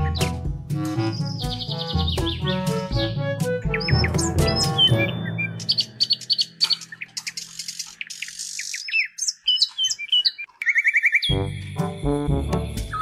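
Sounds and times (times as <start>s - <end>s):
backing music track: 0.0s - 7.0s, 11.3s - 13.0s
birds chirping: 0.0s - 13.0s.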